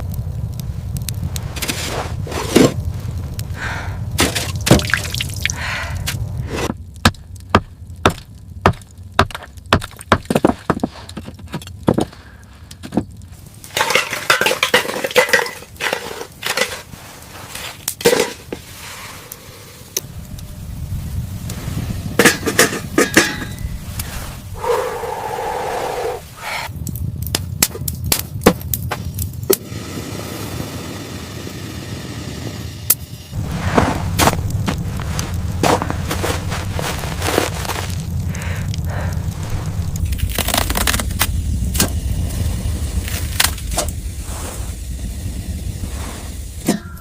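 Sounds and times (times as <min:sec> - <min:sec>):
sharp knocks and cracks: 0:04.2 - 0:05.3, 0:06.1 - 0:16.7, 0:26.8 - 0:29.6.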